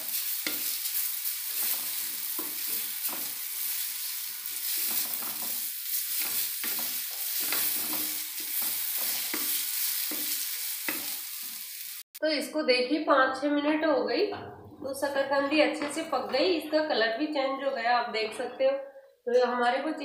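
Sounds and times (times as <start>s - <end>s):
food sizzling in a pan: 0.0s - 12.2s
wooden spatula scraping pan: 1.5s - 11.2s.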